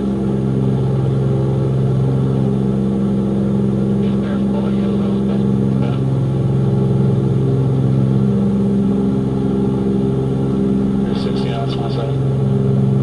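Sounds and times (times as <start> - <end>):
aircraft engines droning in cockpit: 0.0 - 13.0.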